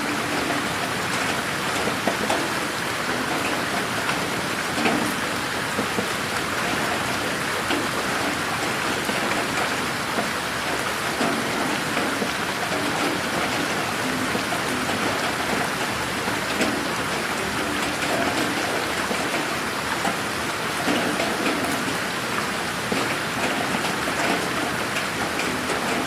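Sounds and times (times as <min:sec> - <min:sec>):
raindrop impacts: 0:07.7 - 0:20.2.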